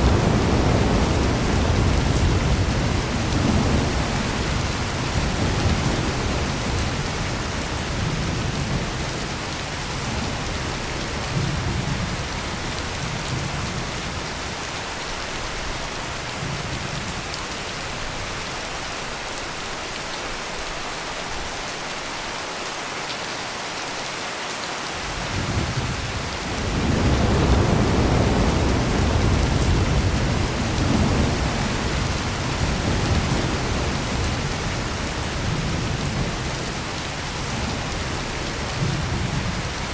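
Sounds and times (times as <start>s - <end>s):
thunder rumbling: 0.0s - 14.2s, 25.1s - 39.9s
heavy rain pouring: 0.0s - 39.9s.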